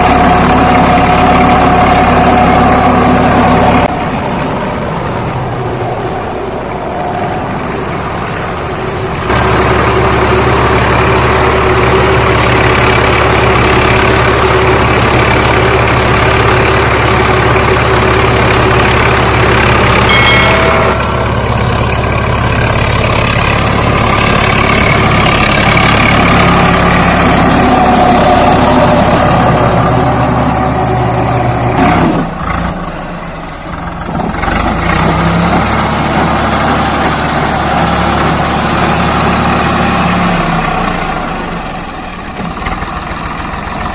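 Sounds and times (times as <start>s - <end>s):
tractor diesel engine running: 0.0s - 43.9s
brief high tone: 20.1s - 22.0s.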